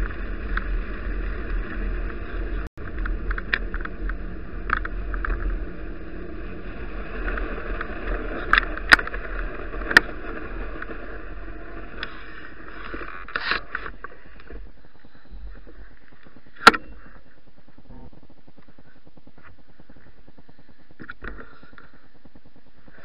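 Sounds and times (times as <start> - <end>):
bicycle tyres rushing through snow: 0.0 - 16.5.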